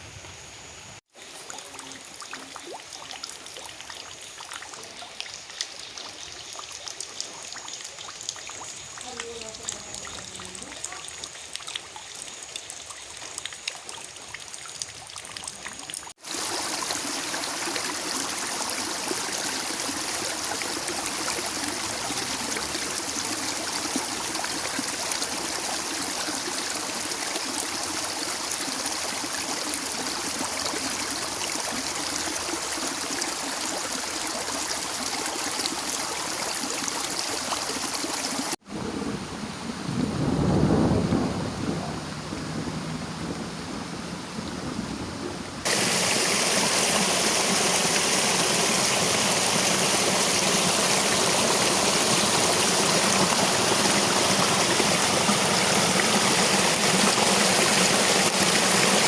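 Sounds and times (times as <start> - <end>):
running water rushing: 1.0 - 39.3, 41.2 - 59.0
water trickling: 1.1 - 38.6, 45.6 - 59.0
water dripping: 1.2 - 38.6.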